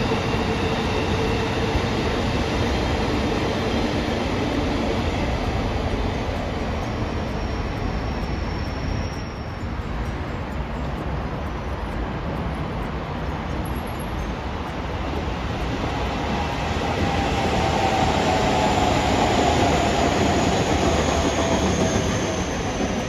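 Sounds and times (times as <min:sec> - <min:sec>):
faint high whine: 0:00.0 - 0:23.0
train rumbling past: 0:00.0 - 0:23.0.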